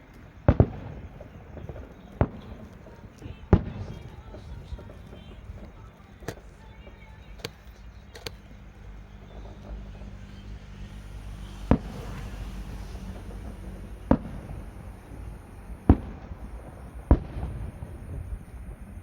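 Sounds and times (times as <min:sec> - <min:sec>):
fireworks bangs: 0:00.0 - 0:19.0
low rumble: 0:08.5 - 0:18.8.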